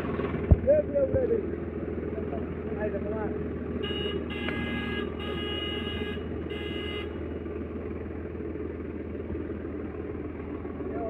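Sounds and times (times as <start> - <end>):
tractor engine running: 0.0 - 11.0
high horn-like tone: 3.8 - 7.2.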